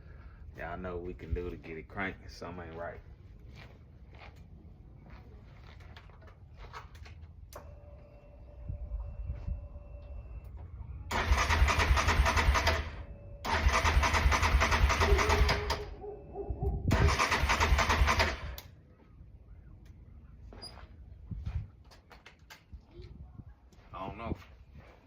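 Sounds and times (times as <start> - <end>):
electric starter cranking engine: 11.1 - 15.9, 16.9 - 18.6.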